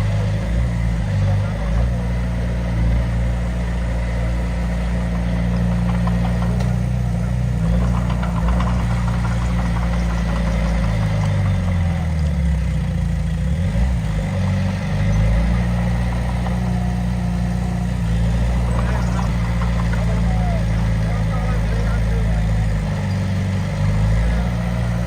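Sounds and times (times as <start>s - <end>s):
diesel engine droning: 0.0s - 25.0s.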